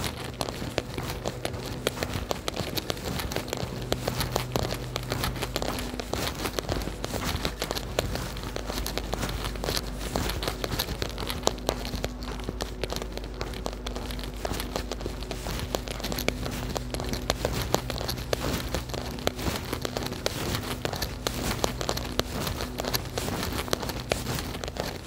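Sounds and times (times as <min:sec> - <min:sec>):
raindrops ticking close by: 0:00.0 - 0:25.0
steady low hum: 0:00.0 - 0:25.0.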